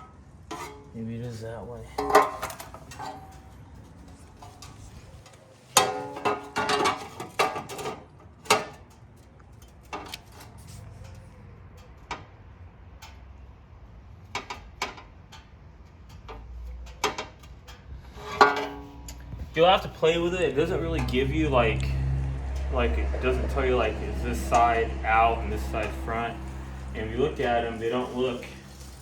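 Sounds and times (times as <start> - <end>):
metal parts clicking and clanking: 1.8 - 13.4, 14.2 - 21.5.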